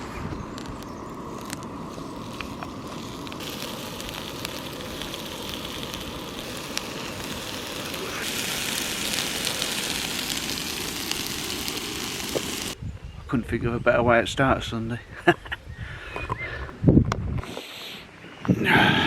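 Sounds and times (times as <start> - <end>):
sausages sizzling in a pan: 0.6 - 12.8.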